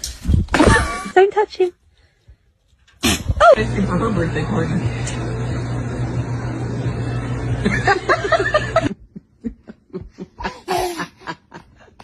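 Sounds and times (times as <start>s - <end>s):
steady low hum: 3.2s - 11.8s
chuckling laugh: 7.6s - 12.0s.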